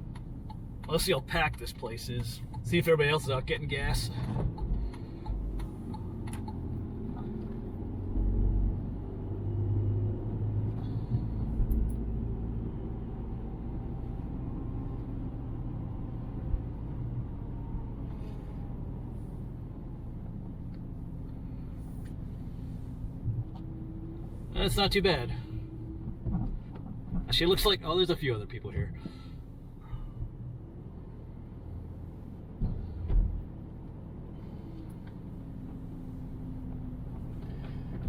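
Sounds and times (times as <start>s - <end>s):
car engine and tyres rumbling: 0.0s - 38.0s
car bumps and knocks: 26.0s - 27.5s.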